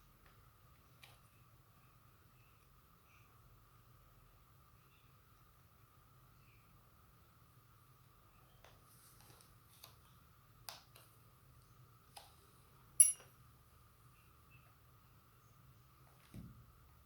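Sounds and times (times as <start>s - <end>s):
sharp ringing metallic tick: 13.0s - 13.2s.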